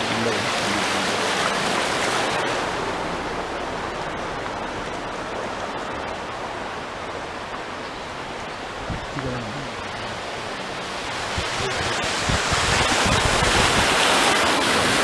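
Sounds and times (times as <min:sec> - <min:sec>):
rushing rain and water: 0:00.0 - 0:15.0.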